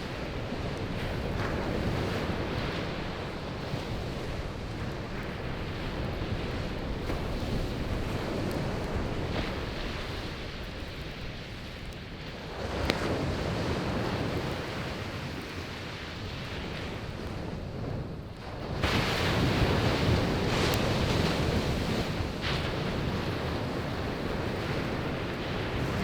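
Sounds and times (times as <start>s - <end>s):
campfire crackling: 0.0s - 26.0s
sea waves breaking on shore: 0.0s - 26.0s.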